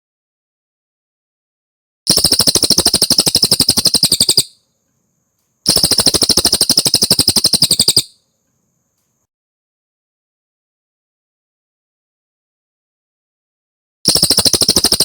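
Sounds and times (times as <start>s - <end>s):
bird chattering trills: 2.1s - 4.6s, 5.7s - 8.1s, 14.1s - 15.0s.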